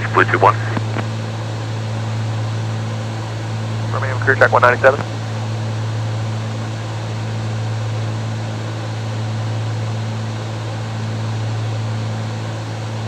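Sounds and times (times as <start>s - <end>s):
aircraft engines droning in cabin: 0.0s - 13.0s.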